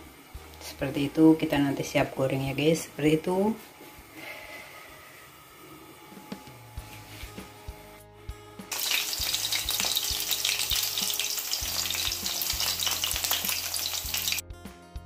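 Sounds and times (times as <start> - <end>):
background music with steady beat: 5.3 - 15.0
food sizzling in hot oil: 8.7 - 14.4.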